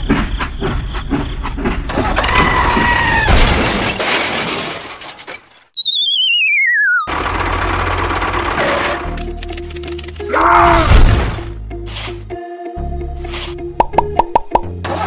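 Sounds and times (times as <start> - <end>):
steady whistle tone: 5.8 - 7.1
warbling whistle gliding down: 5.8 - 7.1.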